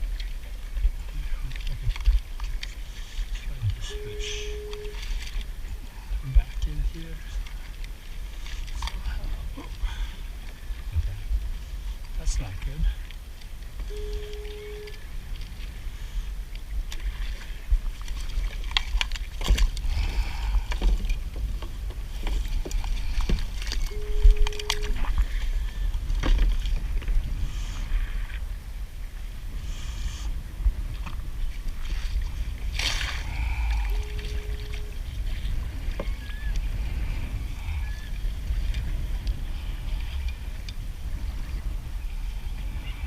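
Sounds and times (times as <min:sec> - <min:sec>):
paddle strokes splashing water: 0:00.0 - 0:43.0
wind on microphone: 0:00.0 - 0:43.0
short electronic beep: 0:03.8 - 0:05.1, 0:13.9 - 0:15.0, 0:23.9 - 0:25.0, 0:33.9 - 0:35.0.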